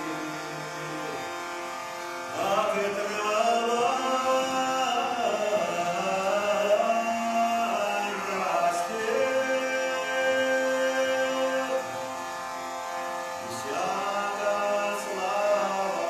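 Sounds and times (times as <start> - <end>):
voices singing a drawn-out melody: 2.3 - 12.2, 13.4 - 16.0.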